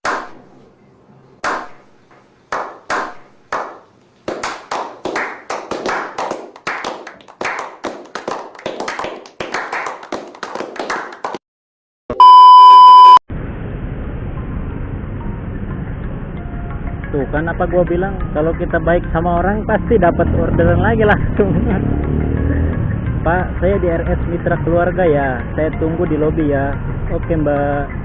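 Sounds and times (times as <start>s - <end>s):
hand clapping: 0.0s - 0.4s, 1.4s - 1.8s, 2.5s - 11.4s
loud steady beep: 12.1s - 13.2s
road noise: 19.1s - 28.0s.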